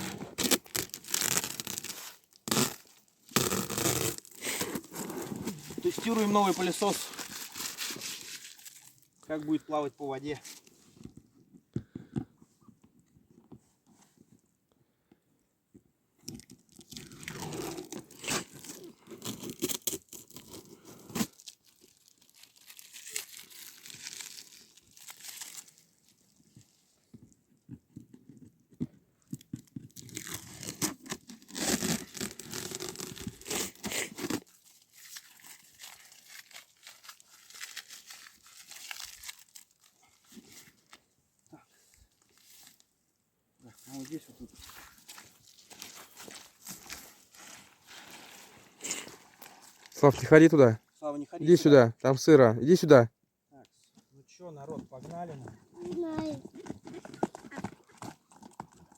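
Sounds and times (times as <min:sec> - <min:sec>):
rustling and crunching: 0:00.0 - 0:12.3, 0:16.2 - 0:41.1, 0:43.6 - 0:50.3.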